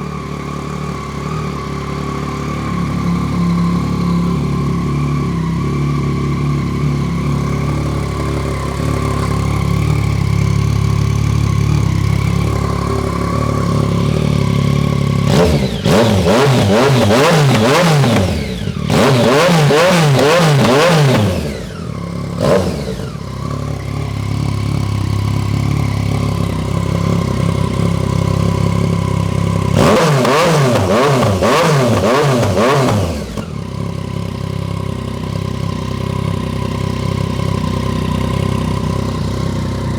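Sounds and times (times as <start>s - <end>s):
engine throttle blips: 0.0s - 39.9s
motorcycle engine idling: 0.0s - 39.9s.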